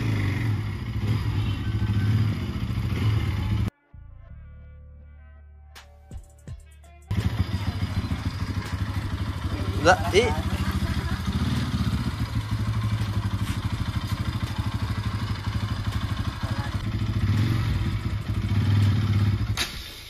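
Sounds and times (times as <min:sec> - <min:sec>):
motorcycle engine idling: 0:00.0 - 0:03.7, 0:07.1 - 0:20.0.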